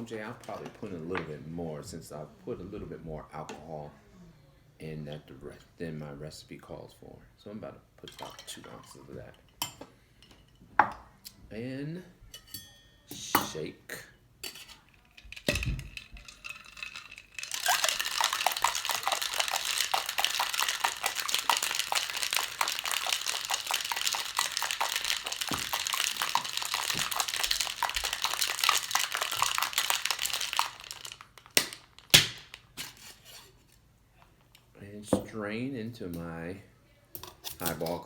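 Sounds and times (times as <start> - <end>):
ice rattling in cocktail shaker: 14.4 - 33.4.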